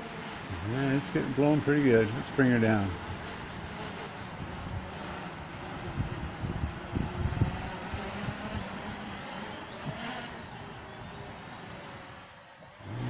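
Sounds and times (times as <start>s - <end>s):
gusty wind buffeting microphone: 0.2s - 11.2s.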